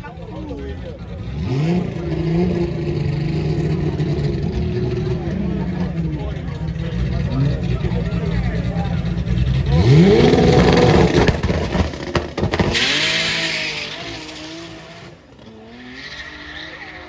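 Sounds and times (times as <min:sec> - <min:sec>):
car accelerating hard: 0:00.0 - 0:17.0
short noisy rush: 0:09.7 - 0:14.7.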